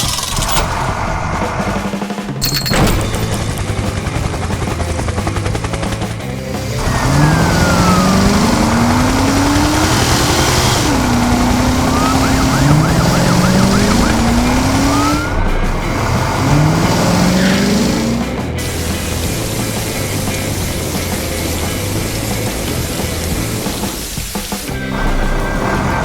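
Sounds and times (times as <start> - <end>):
background music: 0.5 - 26.0
cartoon engines revving: 3.3 - 26.0
siren wailing: 6.8 - 15.8.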